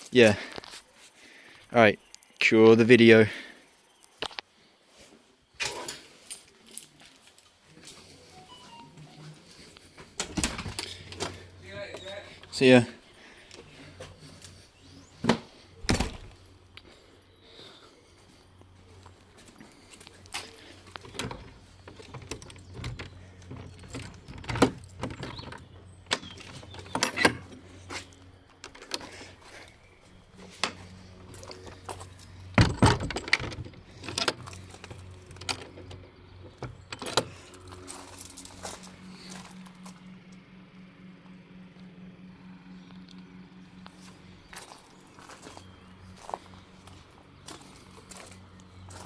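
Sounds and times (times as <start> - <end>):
steady low hum: 7.6 - 49.0
high-pitched tone: 8.3 - 9.5
sharp knocks and clunks: 32.5 - 34.4.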